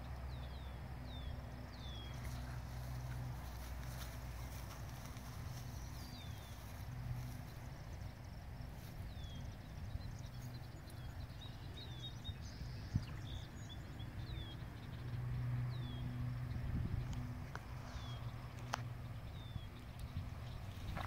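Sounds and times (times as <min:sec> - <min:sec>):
bird chirping: 0:00.0 - 0:21.0.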